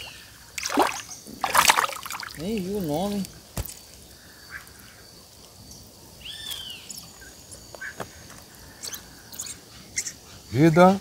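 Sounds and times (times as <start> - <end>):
bird call: 0.0 - 4.8
faint outdoor background: 0.0 - 11.0.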